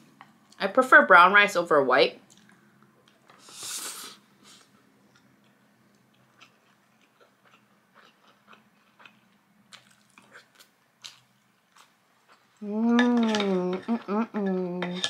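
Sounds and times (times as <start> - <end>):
soft wet chewing: 2.3 - 3.4, 4.6 - 12.6.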